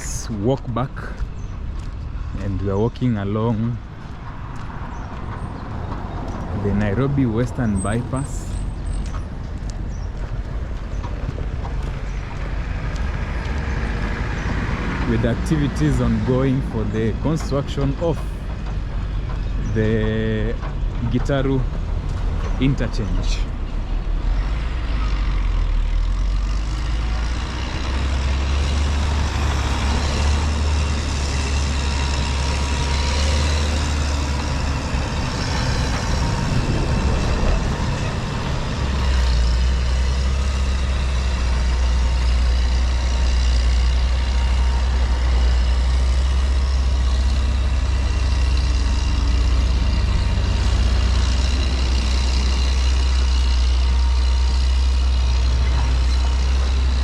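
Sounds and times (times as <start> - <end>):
highway traffic rumble: 0.0 - 57.0.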